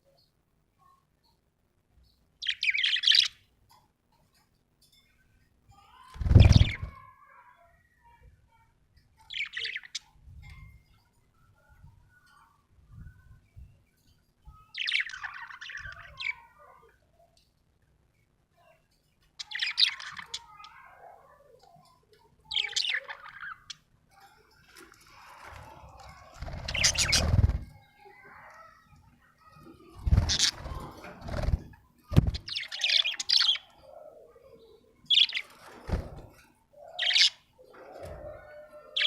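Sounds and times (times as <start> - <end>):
budgerigar chirping and warbling: 26.4 - 27.7, 30.1 - 31.5, 36.9 - 37.5.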